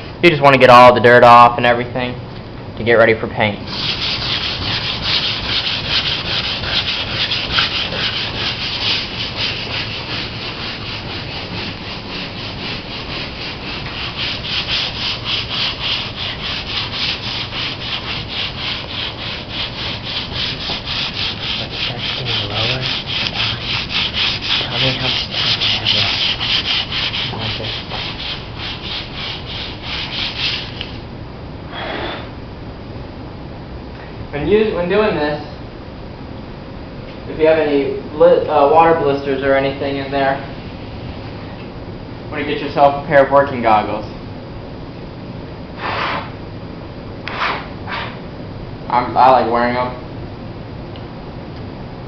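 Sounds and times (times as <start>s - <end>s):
sandpaper rubbing on fibreglass: 3.7s - 31.0s.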